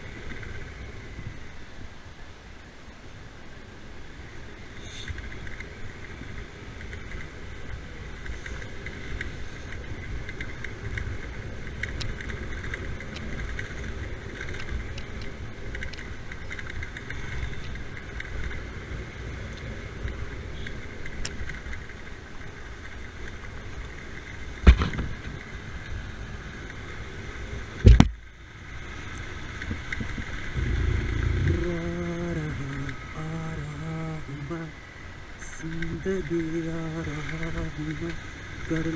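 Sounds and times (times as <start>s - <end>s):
motorbike engine and wind rumble: 0.0s - 38.9s
person humming: 31.3s - 34.8s.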